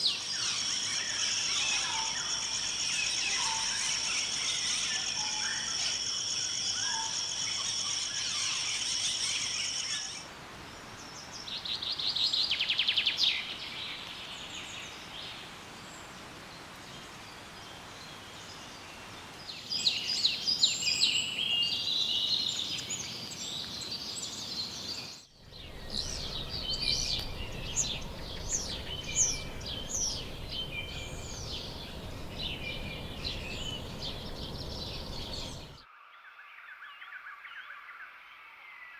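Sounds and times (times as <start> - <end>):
high bird calls and chirps: 0.0 - 10.2, 19.6 - 35.8
insect chorus: 0.0 - 10.3, 17.1 - 35.8.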